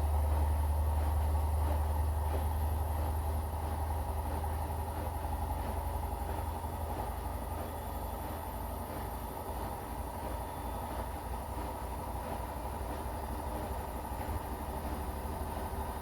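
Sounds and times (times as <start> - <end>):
washing machine running: 0.0 - 16.0.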